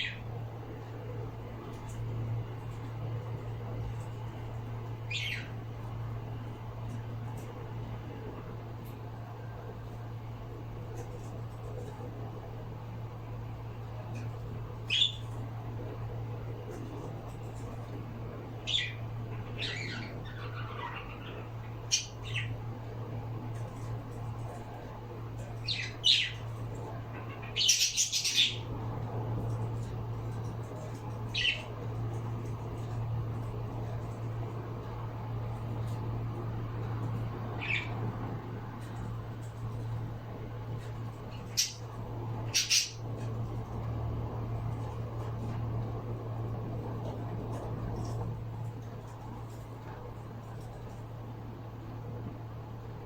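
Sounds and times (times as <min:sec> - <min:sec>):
steady low hum: 0:00.0 - 0:53.0
bird chirping: 0:05.1 - 0:05.6, 0:14.9 - 0:15.3, 0:18.6 - 0:22.6, 0:27.3 - 0:28.7, 0:41.4 - 0:41.9, 0:42.5 - 0:43.0
pet bird squawking and chirping: 0:42.5 - 0:43.0.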